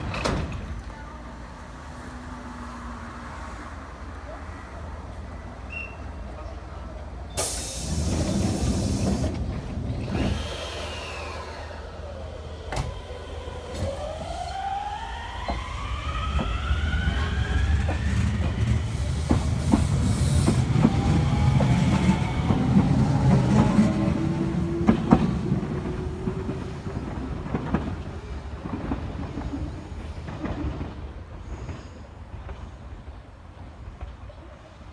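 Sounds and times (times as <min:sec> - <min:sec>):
train motors whining: 0:07.4 - 0:26.9.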